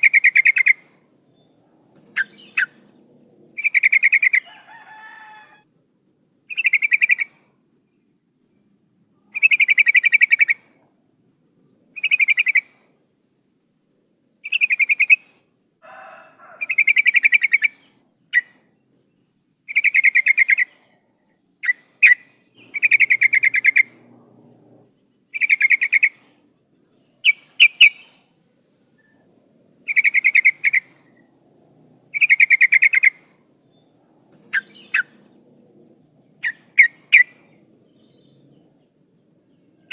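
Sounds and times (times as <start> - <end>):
bird chattering calls: 0.0 - 1.0, 2.0 - 4.5, 6.5 - 7.4, 9.3 - 10.7, 14.4 - 15.3, 16.6 - 18.6, 19.7 - 20.8, 21.6 - 24.1, 25.3 - 26.4, 27.2 - 28.3, 29.0 - 33.4, 34.4 - 35.6, 36.3 - 37.4.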